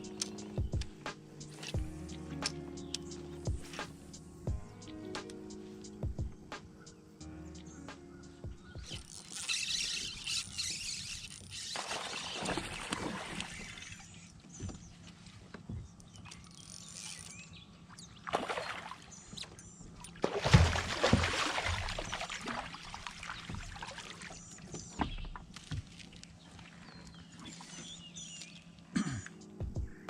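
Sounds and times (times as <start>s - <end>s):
water splashing: 9.0s - 14.4s, 18.2s - 19.3s, 20.0s - 28.0s.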